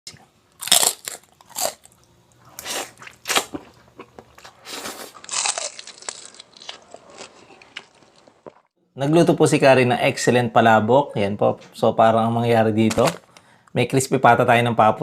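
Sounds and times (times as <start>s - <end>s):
crunching crispy pork skin: 0.6s - 1.9s, 4.7s - 8.6s
soft chewing: 1.4s - 8.7s.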